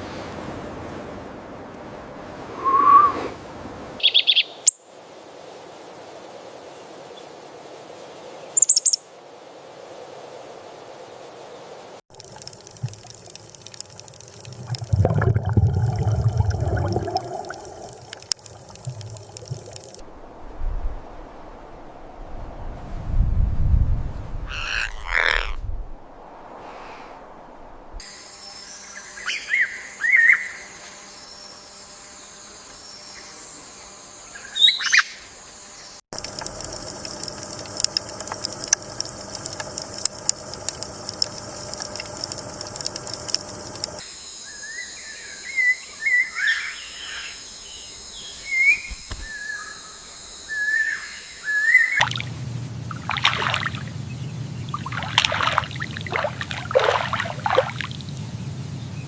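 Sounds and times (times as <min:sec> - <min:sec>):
outdoor background ambience: 0:00.0 - 0:59.0
birds chirping and calling: 0:24.5 - 0:25.6.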